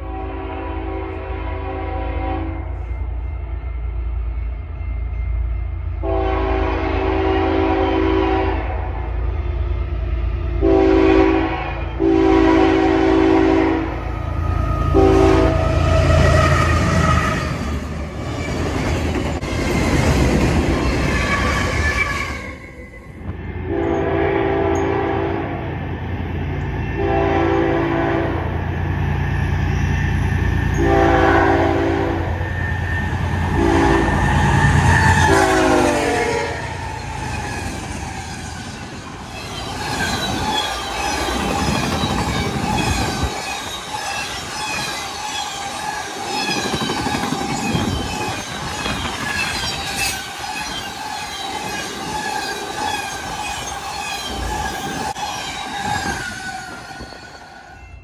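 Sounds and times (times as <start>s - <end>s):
locomotive air horn blasts: 0.0s - 2.9s, 6.0s - 9.0s, 10.6s - 14.2s, 14.8s - 17.5s, 23.7s - 25.6s, 26.9s - 28.6s, 30.7s - 32.6s, 33.4s - 36.8s.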